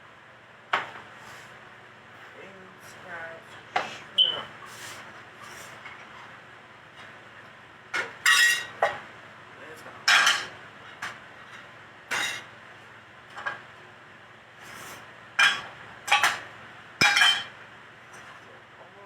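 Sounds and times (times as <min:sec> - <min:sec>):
dishes and utensils clinking: 0:08.2 - 0:09.0, 0:10.0 - 0:11.1, 0:15.4 - 0:16.4, 0:17.0 - 0:17.5.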